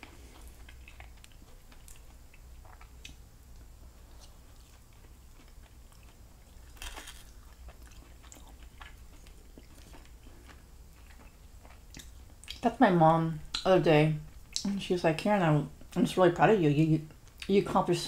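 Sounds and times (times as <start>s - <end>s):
close-up chewing and biting: 0.0s - 12.6s.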